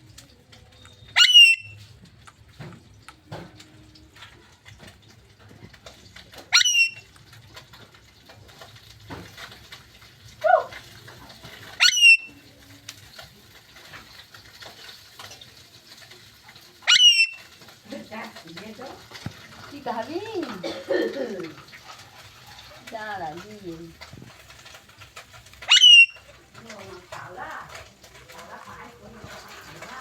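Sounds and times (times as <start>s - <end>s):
parrot falling call: 1.2s - 1.7s, 6.5s - 7.0s, 11.8s - 12.3s, 16.9s - 17.4s, 25.7s - 26.2s
parrot sharp rising calls: 1.2s - 1.8s, 6.5s - 7.0s, 11.8s - 12.3s, 16.8s - 17.5s, 25.6s - 26.2s.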